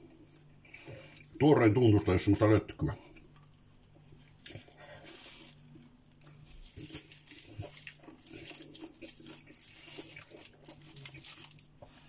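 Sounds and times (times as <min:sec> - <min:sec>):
faint steady hum: 0:00.0 - 0:12.0
crunchy chewing: 0:03.1 - 0:12.0.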